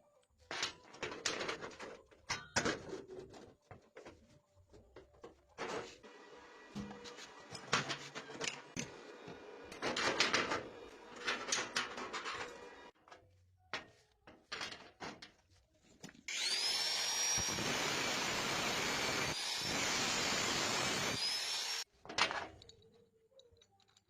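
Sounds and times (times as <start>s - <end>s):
power tool whining: 16.3s - 21.9s.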